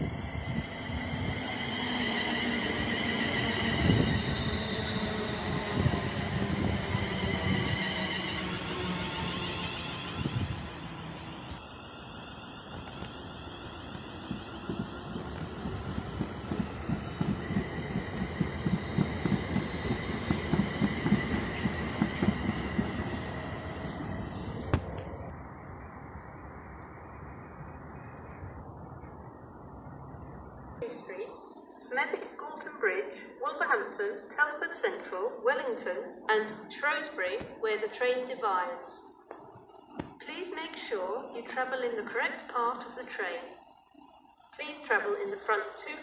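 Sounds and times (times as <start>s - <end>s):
train rumbling: 0.0s - 25.8s
train wheels knocking on rail joints: 14.3s - 23.0s.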